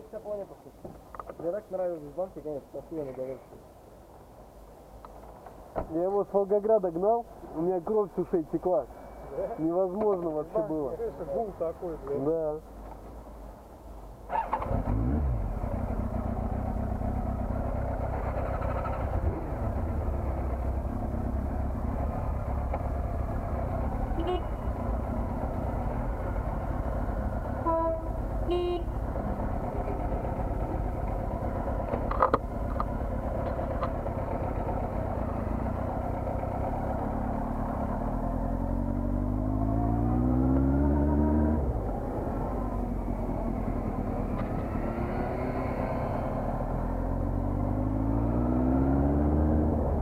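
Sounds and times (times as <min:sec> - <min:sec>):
motorcycle engine running: 0:15.3 - 0:40.8
horn toots: 0:24.1 - 0:24.8, 0:27.6 - 0:29.0.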